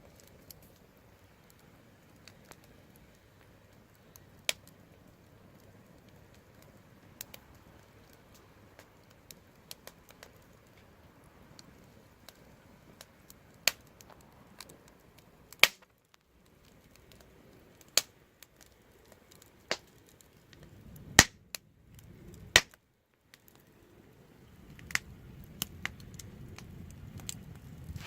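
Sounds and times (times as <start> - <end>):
low rumble of flame: 0.0 - 28.0
wood fire crackling and popping: 0.0 - 28.0.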